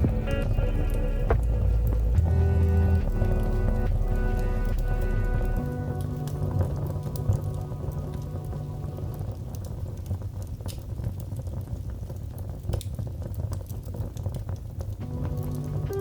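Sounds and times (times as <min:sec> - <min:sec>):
soft sustained music notes: 0:00.0 - 0:10.1, 0:15.0 - 0:16.0
wood fire crackling: 0:00.0 - 0:16.0.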